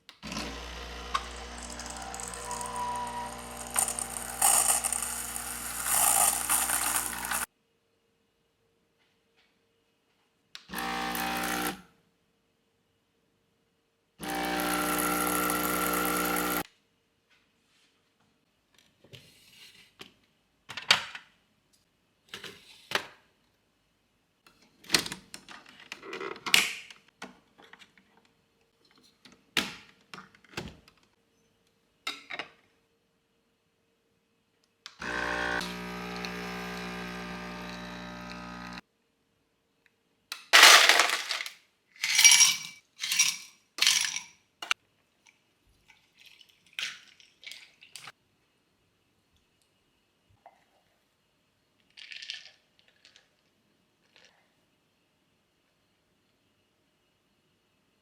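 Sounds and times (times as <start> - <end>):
kitchen appliance humming: 0.2 - 7.5, 10.7 - 11.8, 14.2 - 16.6, 35.0 - 38.8.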